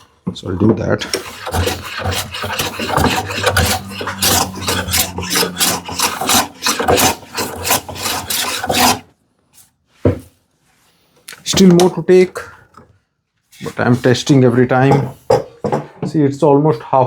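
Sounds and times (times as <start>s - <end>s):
hand plane rasping on wood: 1.0s - 9.1s.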